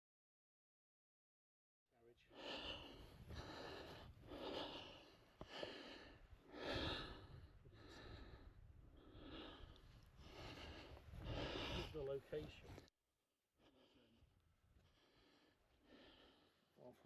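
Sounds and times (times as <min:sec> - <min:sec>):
person breathing heavily: 0:02.2 - 0:12.9, 0:13.6 - 0:17.0.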